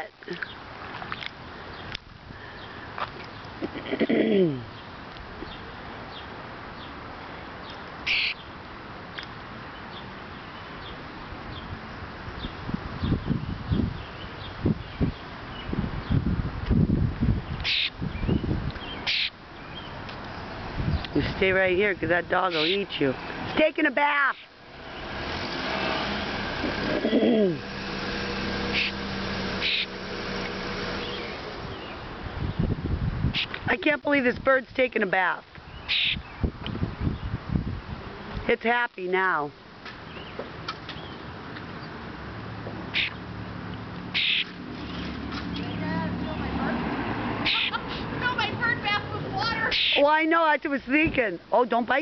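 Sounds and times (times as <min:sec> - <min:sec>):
harsh bird call: 0:08.1 - 0:08.5, 0:17.6 - 0:18.0, 0:18.9 - 0:19.9, 0:22.4 - 0:22.9, 0:28.7 - 0:29.0, 0:29.6 - 0:29.9, 0:35.8 - 0:36.3, 0:42.9 - 0:43.2, 0:44.2 - 0:46.4, 0:47.4 - 0:48.5, 0:49.5 - 0:50.0
car engine humming: 0:17.6 - 0:32.8.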